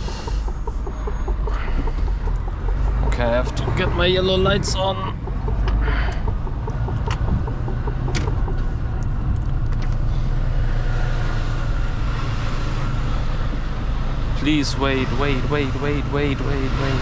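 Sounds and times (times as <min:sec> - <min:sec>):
sharp clicks: 0:00.0 - 0:10.1
truck diesel engine running: 0:00.0 - 0:17.0.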